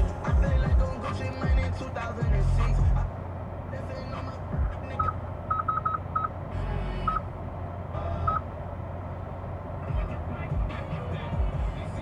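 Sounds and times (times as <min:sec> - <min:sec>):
steady low hum: 0:00.0 - 0:12.0
short beeps: 0:05.0 - 0:06.3.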